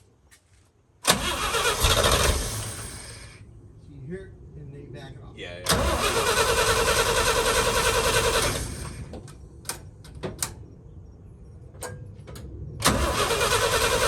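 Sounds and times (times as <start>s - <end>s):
engine turning over and running rough: 1.1s - 3.4s, 5.7s - 9.3s, 12.8s - 14.0s.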